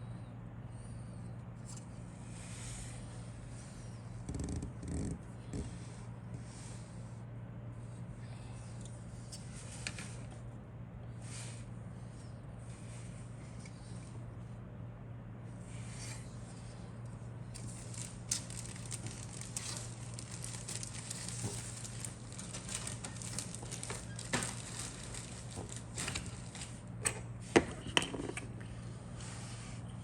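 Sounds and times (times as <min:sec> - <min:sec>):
steady low hum: 0:00.0 - 0:30.0
plastic packaging crinkling: 0:17.6 - 0:27.0.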